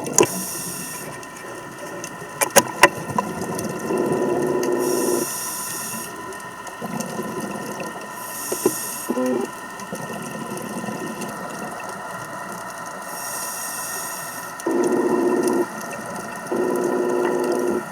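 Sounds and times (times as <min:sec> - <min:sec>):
regulator breathing hiss: 0:00.2 - 0:01.2, 0:04.6 - 0:06.3, 0:08.1 - 0:09.6, 0:12.9 - 0:15.7
small clicks and knocks: 0:02.0 - 0:03.7
bubbling underwater: 0:14.6 - 0:17.9.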